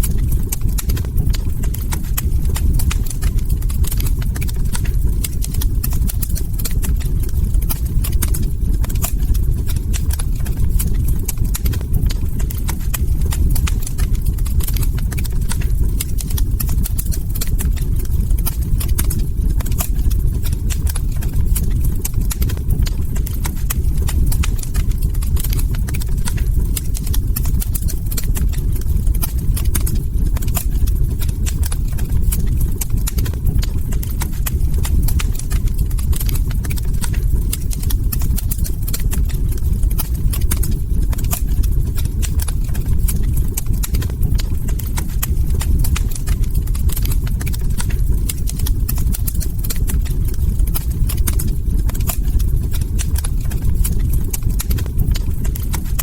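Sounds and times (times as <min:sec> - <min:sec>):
log fire crackling and popping: 0:00.0 - 0:56.0
low rumble of burning: 0:00.0 - 0:56.0.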